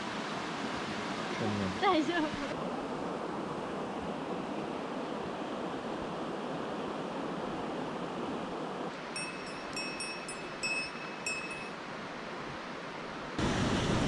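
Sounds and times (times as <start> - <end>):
stream water rushing: 0.0 - 14.0
chime notes of music: 9.2 - 11.8.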